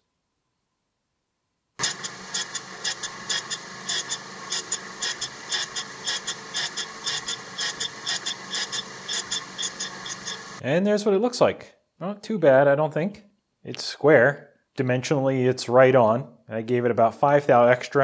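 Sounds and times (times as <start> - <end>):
grinding machine hum: 1.8 - 10.6
grinding wheel hissing on steel: 1.8 - 10.6.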